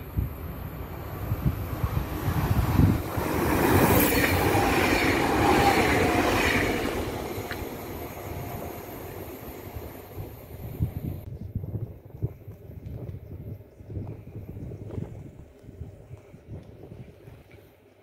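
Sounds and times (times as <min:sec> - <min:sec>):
train wheels whining: 0:00.0 - 0:11.2
train passing rumble: 0:00.0 - 0:11.3.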